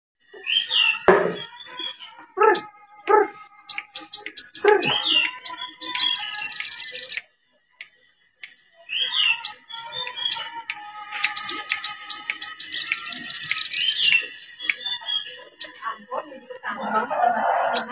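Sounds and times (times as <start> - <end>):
bird singing calls and whistles: 0.2 - 7.3, 8.8 - 16.0.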